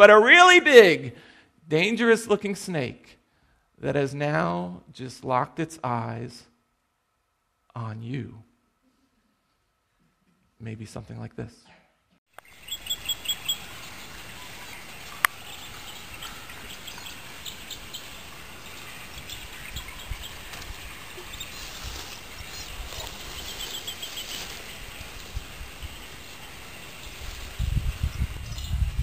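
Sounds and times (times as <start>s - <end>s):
small birds chirping: 12.3s - 29.0s
steady background hiss: 12.4s - 27.9s.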